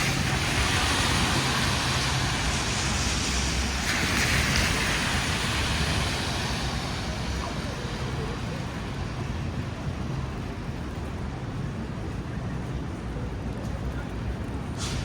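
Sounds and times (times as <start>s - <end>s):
traffic engine rumble: 0.0s - 15.0s
tyre hiss: 14.8s - 15.0s.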